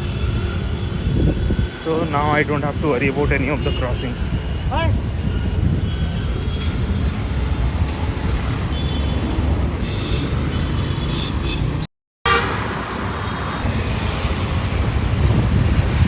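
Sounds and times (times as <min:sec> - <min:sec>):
rumble of passing vehicles: 0:00.0 - 0:16.0
vehicle horn toots: 0:09.8 - 0:12.6.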